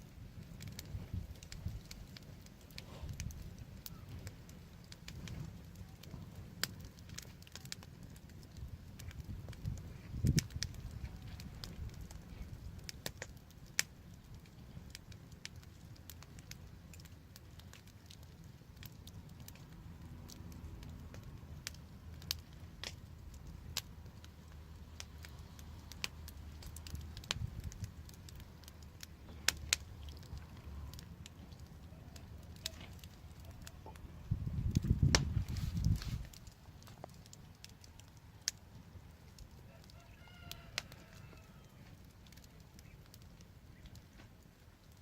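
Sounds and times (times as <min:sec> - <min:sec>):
wood fire crackling: 0:00.0 - 0:45.0
low steady rumble: 0:18.2 - 0:37.5.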